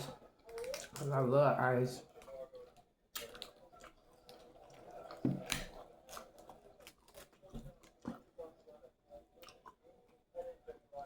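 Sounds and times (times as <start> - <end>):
chewing crunches and clicks: 0.4 - 1.1, 2.1 - 8.0, 9.4 - 9.8.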